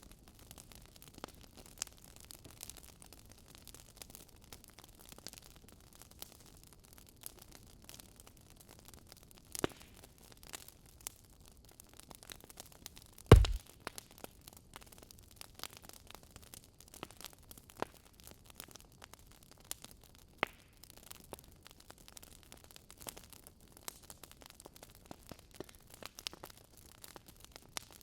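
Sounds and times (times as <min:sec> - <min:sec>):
wood fire crackling: 0:13.3 - 0:13.6.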